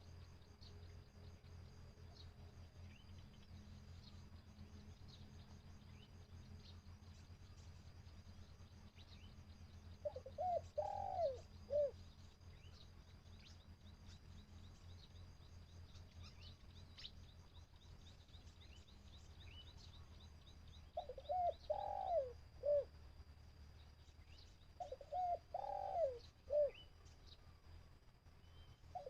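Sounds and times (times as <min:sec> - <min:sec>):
dove cooing: 0:10.0 - 0:12.0, 0:21.0 - 0:22.9, 0:24.8 - 0:26.8.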